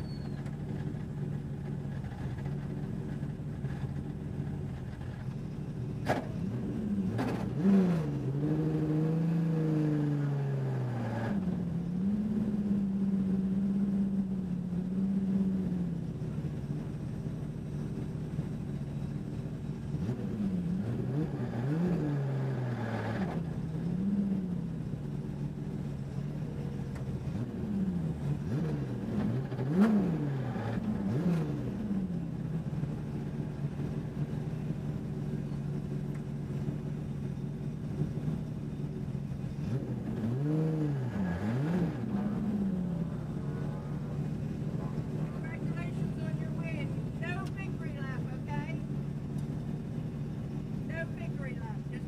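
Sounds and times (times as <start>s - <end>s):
race car engine revving: 26.9s - 34.7s, 39.3s - 52.0s.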